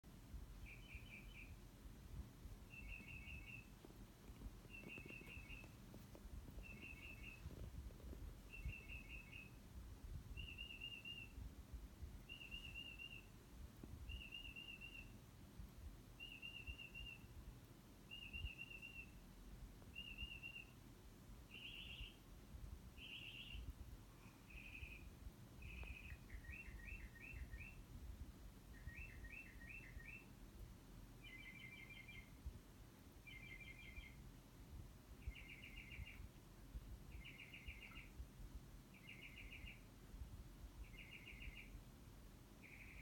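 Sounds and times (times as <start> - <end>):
bird singing: 0.6 - 1.6, 2.7 - 3.8, 4.6 - 5.8, 6.6 - 7.7, 8.4 - 9.6, 10.4 - 11.4, 12.3 - 13.3, 14.1 - 15.2, 16.2 - 17.3, 18.1 - 19.2, 19.9 - 20.8, 21.5 - 22.2, 23.0 - 27.8, 28.7 - 30.4, 31.2 - 32.4, 33.2 - 34.2, 35.2 - 36.3, 37.1 - 38.2, 38.9 - 39.9, 40.8 - 41.8, 42.6 - 43.0.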